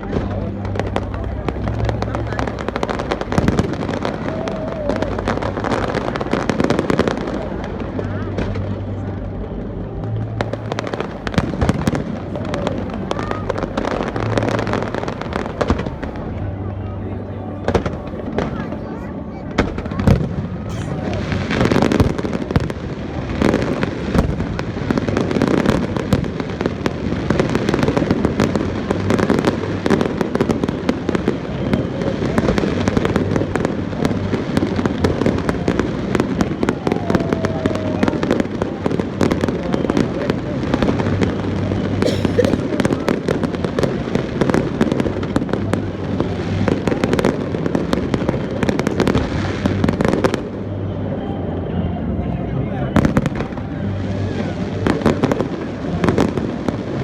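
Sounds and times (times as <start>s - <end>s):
fireworks bangs and crackles: 0.0s - 16.8s, 17.5s - 51.7s, 52.9s - 57.0s.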